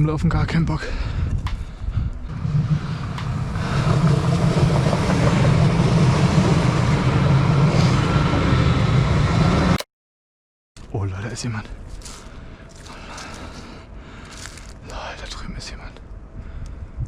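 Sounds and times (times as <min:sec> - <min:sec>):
train rumbling past: 0:02.1 - 0:09.8.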